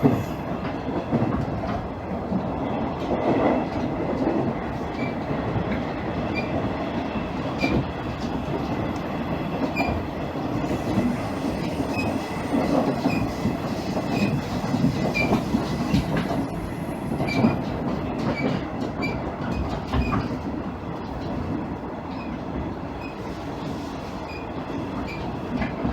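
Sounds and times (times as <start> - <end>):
train rumbling on rails: 0.0 - 25.9.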